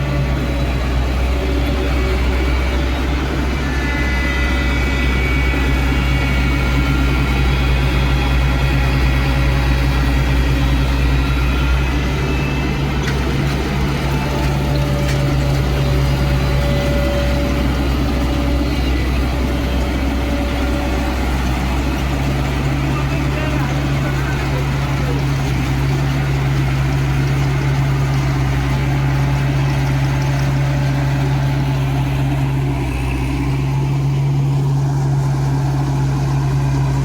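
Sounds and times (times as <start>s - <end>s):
combine harvester engine running: 0.0s - 37.0s.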